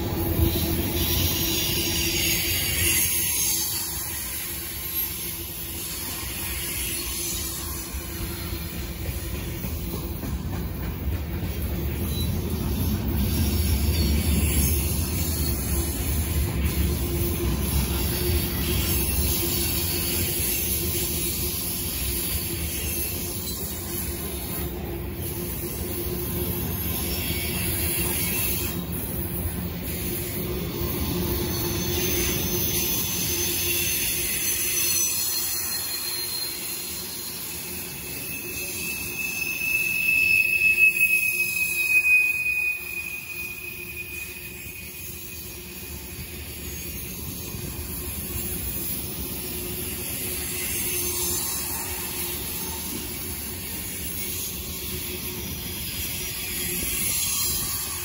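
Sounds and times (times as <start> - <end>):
high wheel squeal: 0.0 - 9.2, 11.9 - 58.0
freight train cars rolling past: 0.0 - 58.0.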